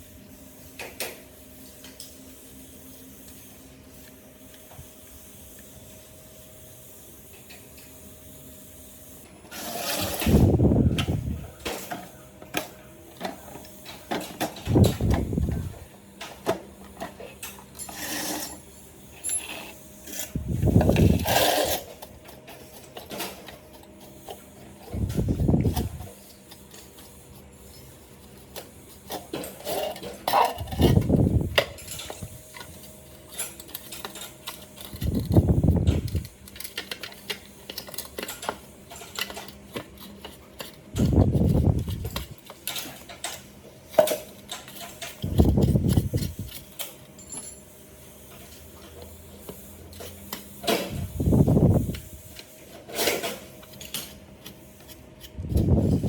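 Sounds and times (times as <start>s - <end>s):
metal parts and tools clinking: 16.4s - 27.0s, 29.0s - 47.8s.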